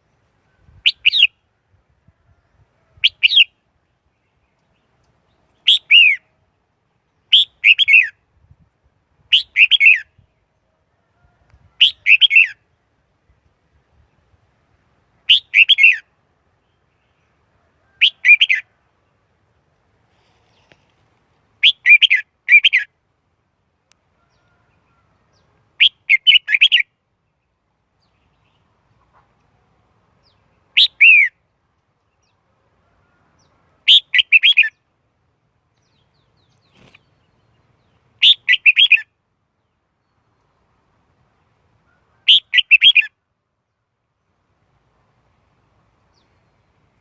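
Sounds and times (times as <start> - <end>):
bird whistled song phrases: 15.3 - 16.0, 30.8 - 31.4, 33.9 - 34.8, 38.2 - 39.1, 42.3 - 43.1.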